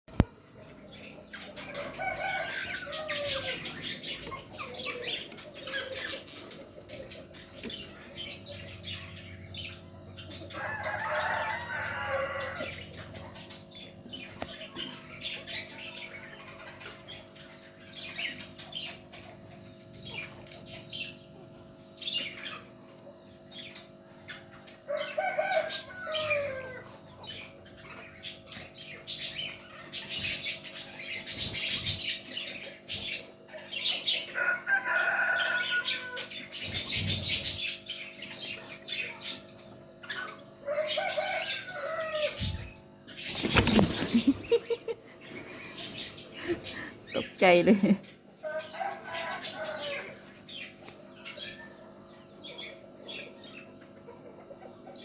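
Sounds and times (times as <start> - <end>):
steady low hum: 36.2 - 55.0
wings flapping: 43.3 - 44.6.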